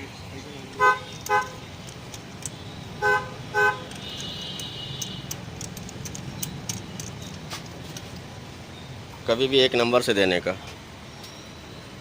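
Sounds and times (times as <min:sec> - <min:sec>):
vehicle horn short beeps: 0:03.0 - 0:05.2.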